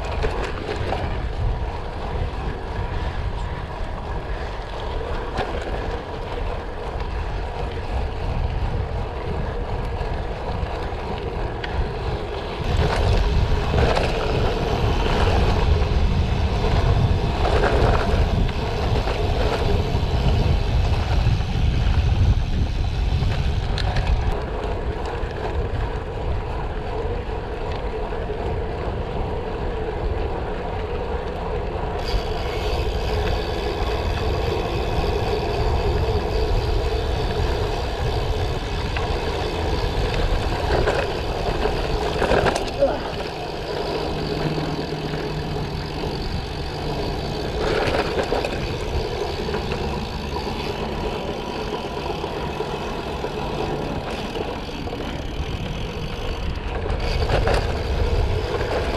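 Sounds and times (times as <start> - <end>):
wind buffeting microphone: 0.0 - 58.9
tyres rumbling over gravel: 31.0 - 58.9.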